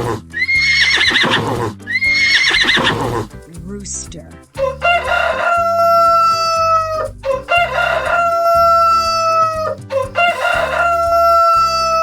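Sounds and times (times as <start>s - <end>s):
rooster crowing: 4.6s - 12.0s.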